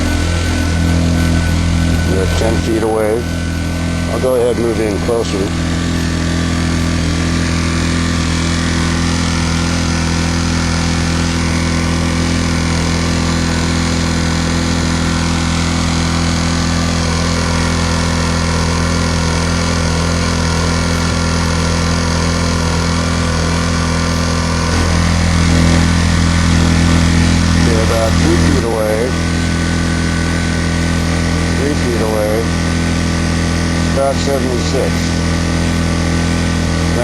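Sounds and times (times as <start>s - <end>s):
generator engine running: 0.0s - 37.0s.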